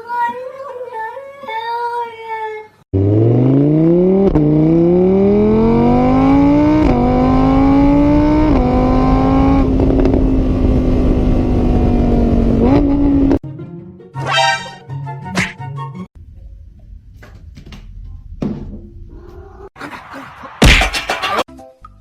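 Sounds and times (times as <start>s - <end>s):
vehicle engine accelerating: 2.9s - 13.4s.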